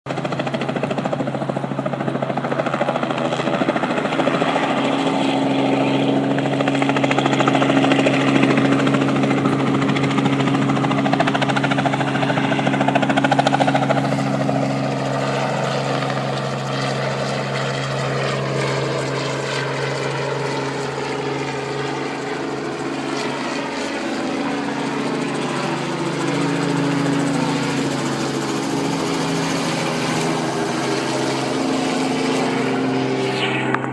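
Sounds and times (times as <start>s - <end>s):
helicopter flying close by: 0.1s - 33.9s.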